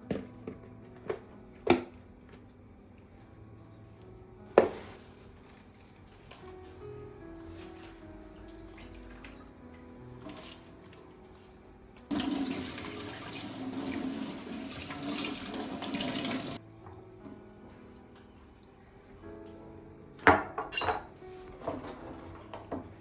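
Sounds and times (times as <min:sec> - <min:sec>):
soft background music: 0:00.0 - 0:23.0
tap water running into sink: 0:12.1 - 0:16.6.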